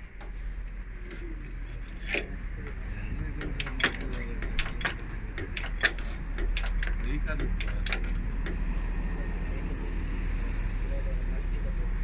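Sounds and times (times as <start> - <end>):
steady low hum: 0.0 - 12.0
hand tools clanking on metal: 1.0 - 8.7.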